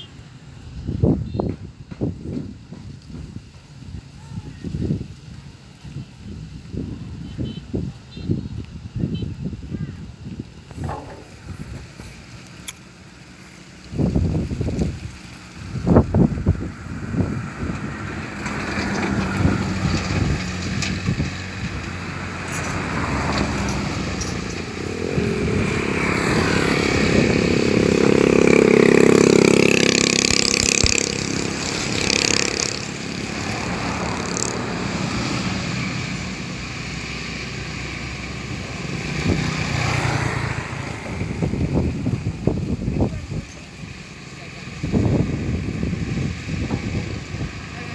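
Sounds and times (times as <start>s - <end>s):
motorcycle engine revving: 13.4s - 47.9s.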